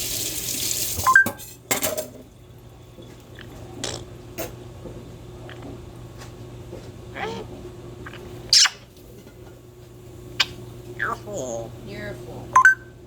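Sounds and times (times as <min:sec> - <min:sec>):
kitchen tap running: 0:00.0 - 0:03.9
dishes and utensils clinking: 0:01.1 - 0:03.3.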